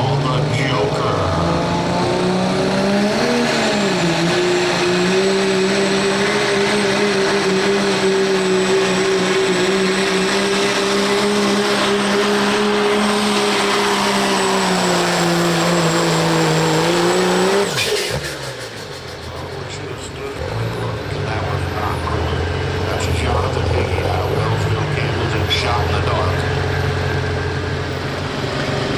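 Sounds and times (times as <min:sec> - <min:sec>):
truck engine at full throttle: 0:00.0 - 0:28.9
high turbo whistle: 0:03.7 - 0:19.6.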